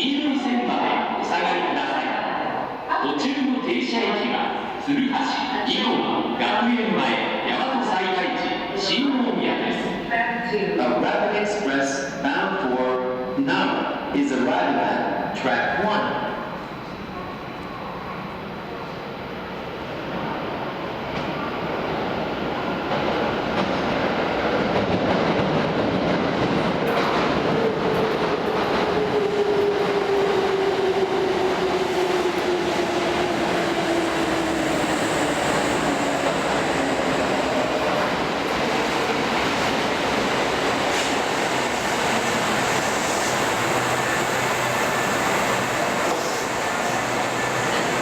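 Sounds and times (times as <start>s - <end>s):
train wheels clacking on rails: 22.9s - 48.0s.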